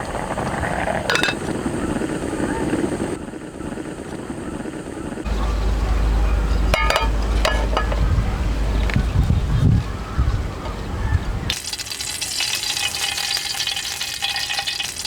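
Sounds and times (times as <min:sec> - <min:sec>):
steady low rumble: 0:00.0 - 0:11.5
metal cookware clinking: 0:01.1 - 0:01.4, 0:06.7 - 0:08.2.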